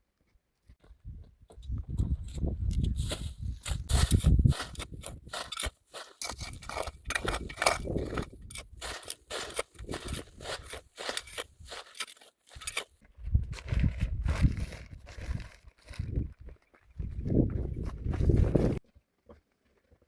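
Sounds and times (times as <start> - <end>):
scraping and crackling: 2.8 - 13.0.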